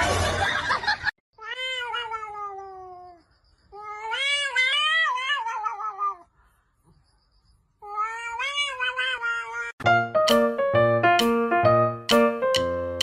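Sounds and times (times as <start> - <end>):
cat meowing: 1.4 - 6.3, 7.8 - 9.8.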